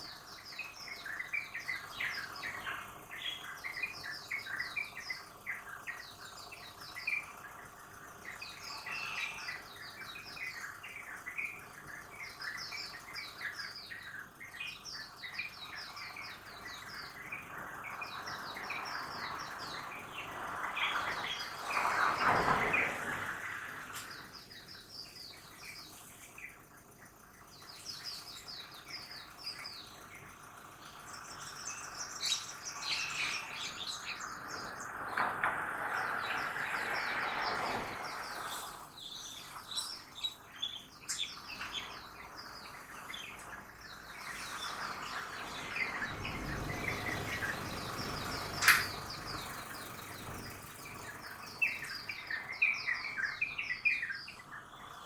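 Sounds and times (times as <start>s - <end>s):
small birds chirping: 0.0s - 55.0s
city traffic: 43.6s - 51.3s.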